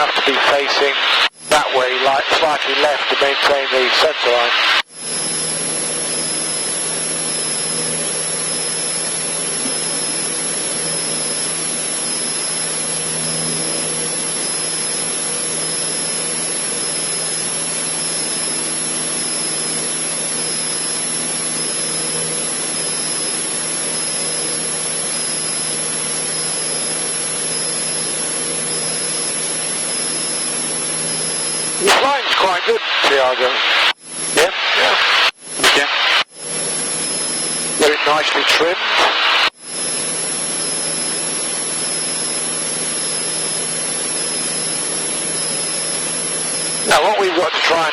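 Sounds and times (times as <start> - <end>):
thin high whine: 0.0 - 47.9
propeller plane engine droning: 4.3 - 32.3.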